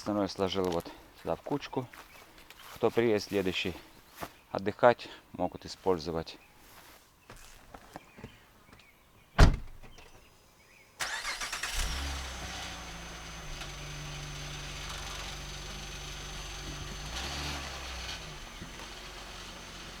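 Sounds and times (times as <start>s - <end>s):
loud thump: 9.4s - 9.9s
car engine cranking and idling: 11.0s - 20.0s.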